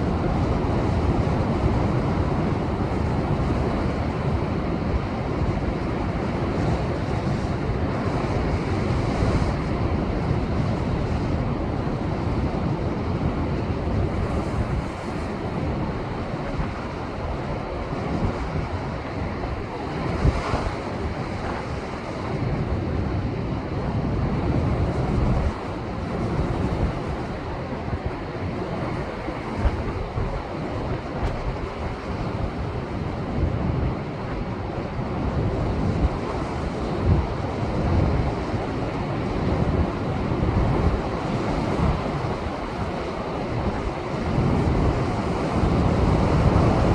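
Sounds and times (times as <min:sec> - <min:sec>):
wind buffeting microphone: 0:00.0 - 0:46.9
storm surf crashing on rocks: 0:24.3 - 0:46.9.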